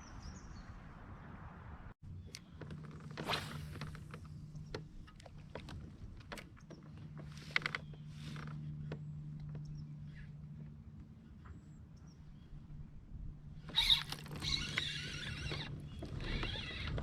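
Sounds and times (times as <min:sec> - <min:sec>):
faint creak: 0:02.2 - 0:11.1, 0:13.6 - 0:17.0.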